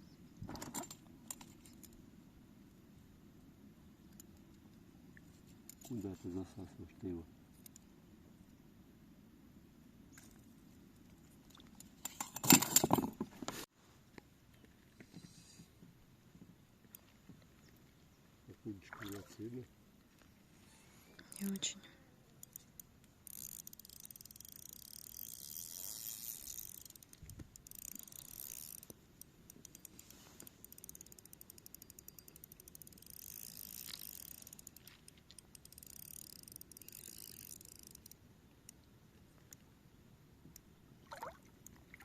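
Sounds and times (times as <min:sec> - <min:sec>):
fishing reel gears clicking: 0:21.2 - 0:21.7, 0:22.4 - 0:38.8.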